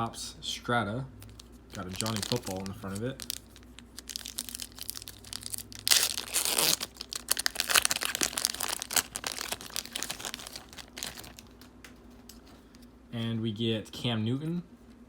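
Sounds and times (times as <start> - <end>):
card pack wrapper ripping: 1.2 - 11.7
wrapper crinkling: 1.2 - 11.7.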